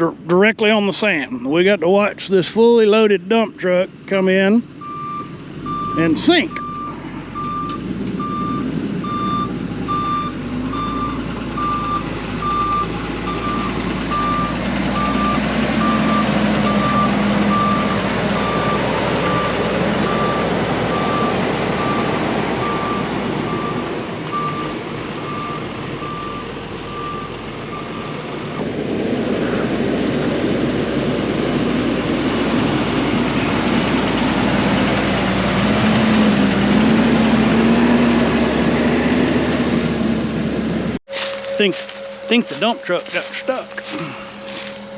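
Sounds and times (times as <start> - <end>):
diesel truck engine: 0.0 - 44.9
truck backup alarm beeping: 3.3 - 28.6, 41.0 - 44.9.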